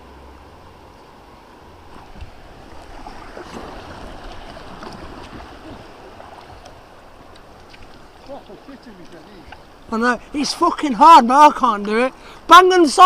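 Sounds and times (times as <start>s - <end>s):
river current rushing: 0.0s - 13.0s
water splashing around kayak: 0.7s - 13.0s
small splashes and drips: 1.9s - 9.9s.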